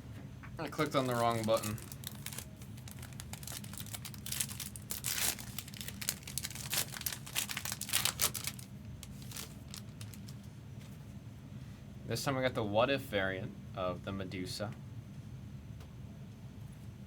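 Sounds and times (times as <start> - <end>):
steady low hum: 0.0 - 17.0
foil wrapper tearing and crinkling: 0.7 - 10.5.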